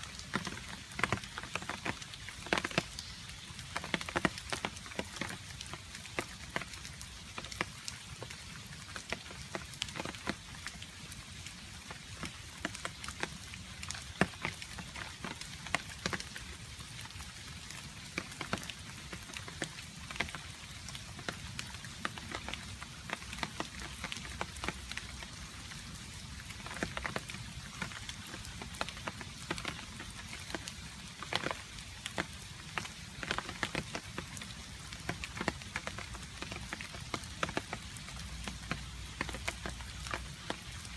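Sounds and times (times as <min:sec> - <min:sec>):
rain patter: 0:00.0 - 0:40.9.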